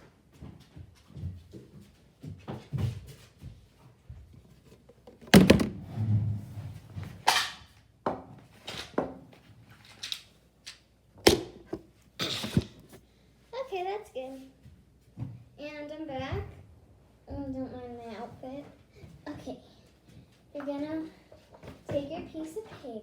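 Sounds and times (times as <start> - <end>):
objects thunking and knocking: 4.1 - 7.2, 11.2 - 13.0.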